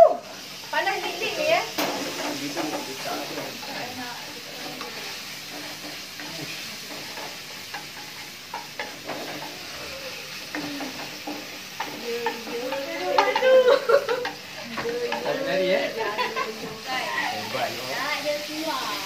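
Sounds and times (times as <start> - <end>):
food sizzling in a wok: 0.0 - 19.0
wooden spatula scraping a pan: 0.6 - 13.5.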